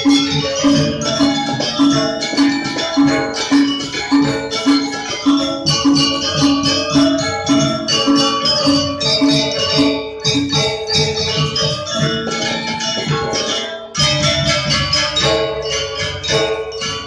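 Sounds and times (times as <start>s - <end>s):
metallic rattling and jingling: 0.0s - 17.0s
metallophones striking notes: 0.0s - 17.0s.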